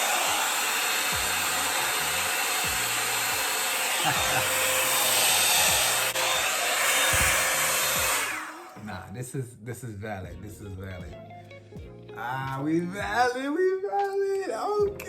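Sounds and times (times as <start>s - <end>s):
hair dryer blowing air: 0.0s - 8.9s.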